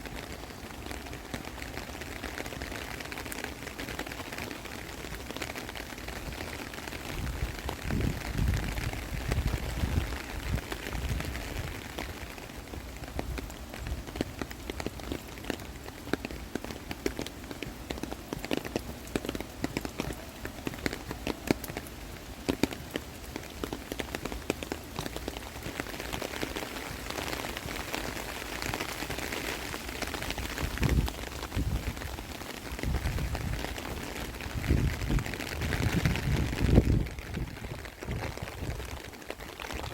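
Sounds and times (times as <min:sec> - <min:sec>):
raindrops ticking close by: 0:00.0 - 0:39.9
steady hiss of rain: 0:00.0 - 0:39.9.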